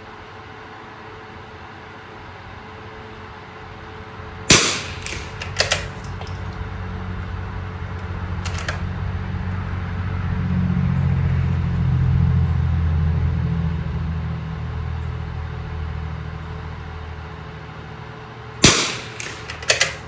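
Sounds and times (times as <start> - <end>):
low engine rumble: 1.3 - 20.0
rifle shot: 4.5 - 6.4, 8.5 - 8.8, 18.6 - 20.0
sharp clicks: 4.5 - 6.4, 8.4 - 8.8, 18.6 - 20.0.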